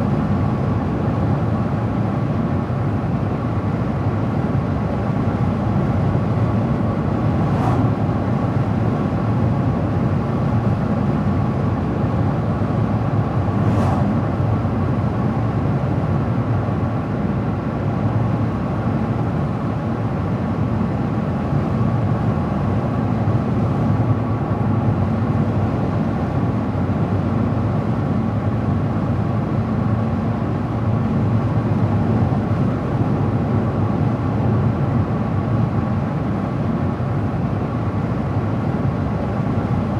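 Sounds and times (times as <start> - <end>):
car road noise: 5.0 - 10.8, 11.7 - 16.2.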